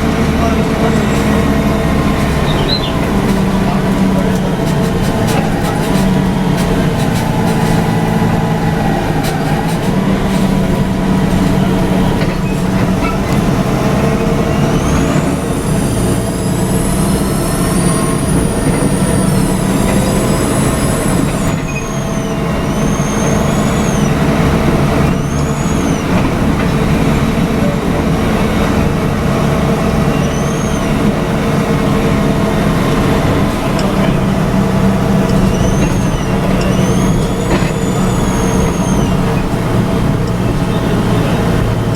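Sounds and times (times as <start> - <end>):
bus diesel engine droning: 0.0 - 41.9
high whistling tones: 2.4 - 3.1, 14.3 - 26.2, 30.0 - 31.2, 35.2 - 39.6.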